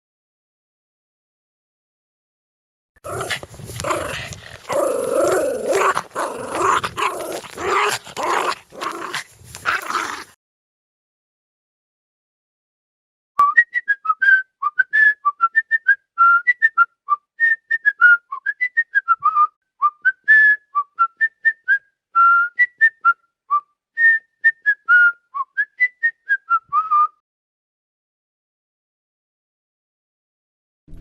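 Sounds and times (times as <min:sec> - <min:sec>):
person whistling a tune: 0:13.4 - 0:27.2.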